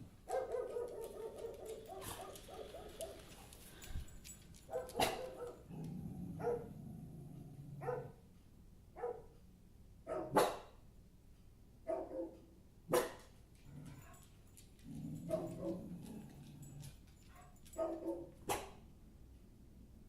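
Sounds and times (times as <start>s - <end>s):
dog barking: 0.2s - 3.4s, 4.7s - 5.7s, 6.4s - 6.8s, 7.8s - 8.2s, 9.0s - 9.4s, 10.0s - 10.8s, 11.8s - 13.3s, 15.3s - 15.9s, 17.3s - 18.8s.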